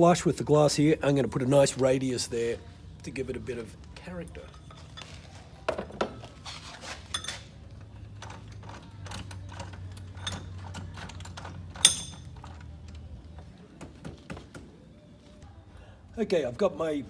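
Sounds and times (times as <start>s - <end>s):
ringing metal clink: 4.2s - 5.3s, 7.1s - 7.5s, 11.8s - 12.5s
small metal clicks and knocks: 7.1s - 13.0s.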